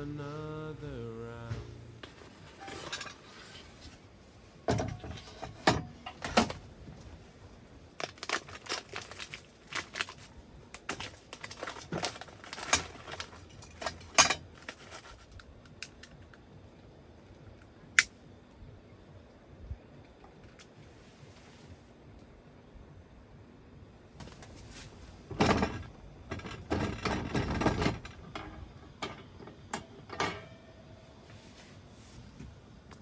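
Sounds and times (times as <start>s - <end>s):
clinks of metal and plastic items: 2.5s - 3.4s, 8.0s - 16.3s, 25.3s - 30.7s.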